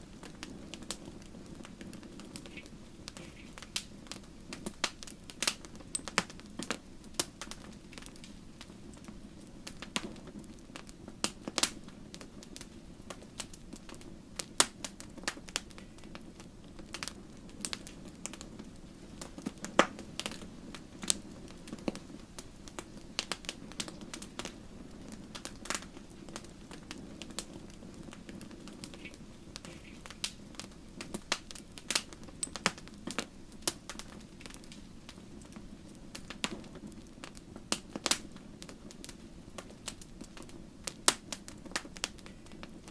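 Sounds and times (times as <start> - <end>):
low rush of flames: 0.0 - 42.9
firewood popping and snapping: 0.1 - 42.9.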